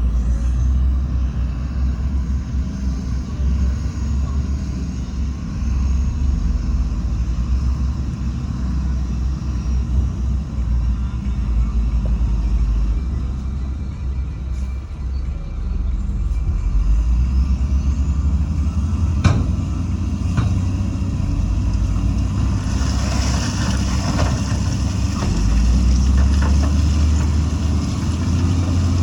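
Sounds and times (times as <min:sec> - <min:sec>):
heavy diesel machinery rumbling: 0:00.0 - 0:29.0.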